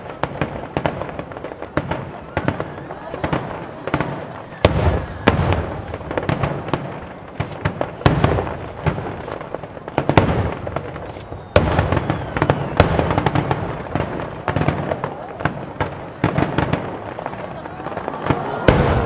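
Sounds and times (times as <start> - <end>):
fireworks bursting and crackling: 0.0 - 19.0
loud firework boom: 0.2 - 7.0, 10.1 - 17.5, 18.2 - 19.0
faint rising whistles: 11.1 - 13.3.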